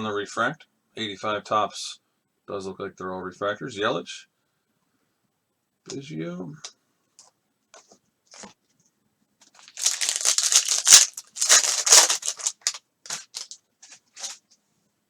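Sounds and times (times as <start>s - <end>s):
foil wrapper crinkling and tearing: 9.5s - 14.4s.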